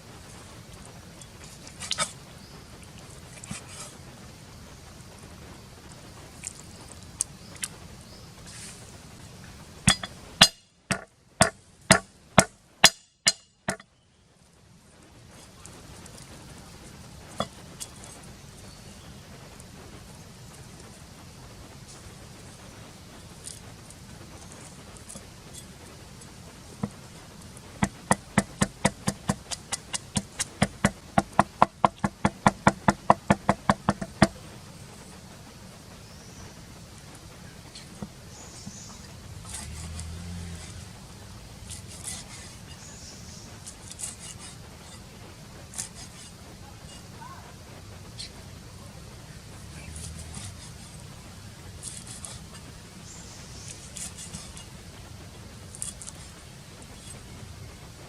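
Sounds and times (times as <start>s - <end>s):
sharp ringing knocks: 9.9s - 13.9s, 27.8s - 34.4s
knife chopping on wooden board: 27.8s - 34.4s.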